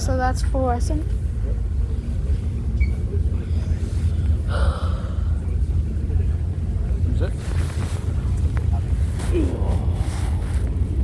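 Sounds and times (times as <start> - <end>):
ferry engines low rumble: 0.0 - 11.0.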